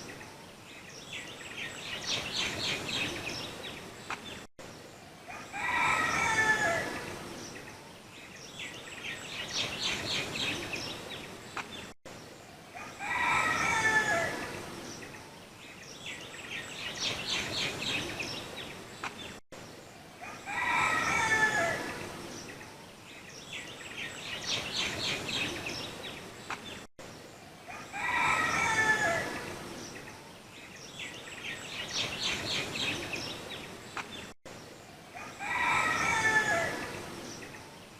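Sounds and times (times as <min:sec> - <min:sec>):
bird crowing call: 0:05.3 - 0:07.1, 0:12.8 - 0:14.5, 0:20.2 - 0:22.0, 0:27.7 - 0:29.4, 0:35.1 - 0:37.0.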